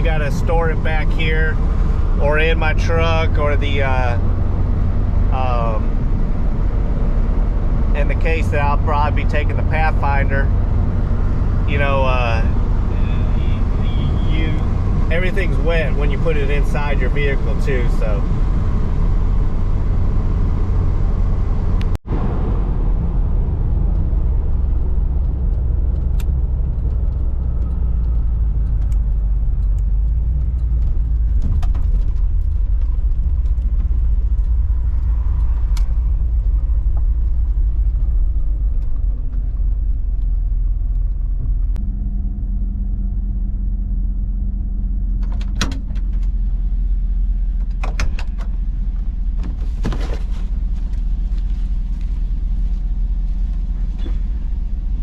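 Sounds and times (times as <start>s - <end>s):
steady engine tone: 0.0s - 55.0s
vehicle driving rumble: 0.0s - 55.0s
light rattles and clicks: 24.5s - 41.8s.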